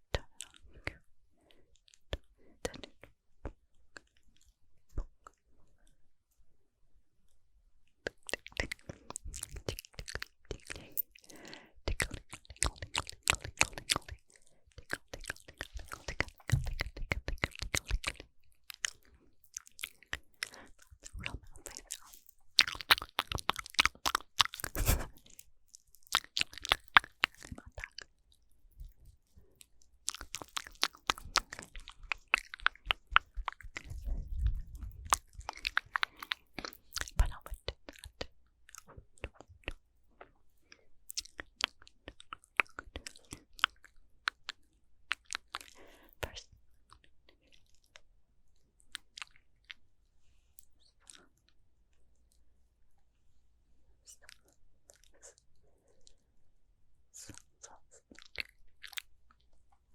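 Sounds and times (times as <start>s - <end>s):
wet mouth clicks and smacks: 8.0s - 28.2s, 30.0s - 39.8s, 41.1s - 48.1s, 48.8s - 49.8s, 57.1s - 59.7s.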